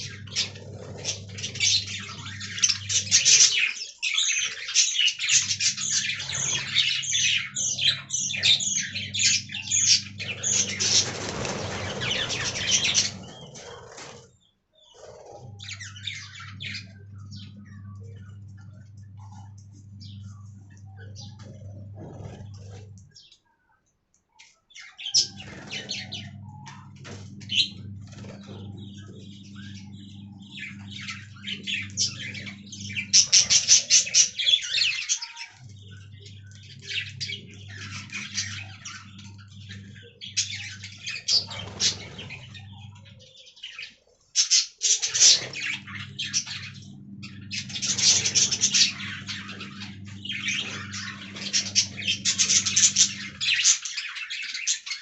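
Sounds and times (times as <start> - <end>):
steady low hum: 0.0 - 3.9, 4.5 - 23.3, 25.0 - 43.8, 44.4 - 54.7
budgerigars chirping: 0.0 - 14.2, 27.5 - 55.0.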